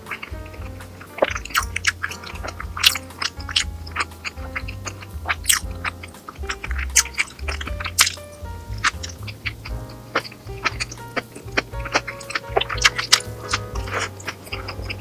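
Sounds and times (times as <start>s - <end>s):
soft background music with bass: 0.0s - 15.0s
chewing and crunchy bites: 4.8s - 5.7s.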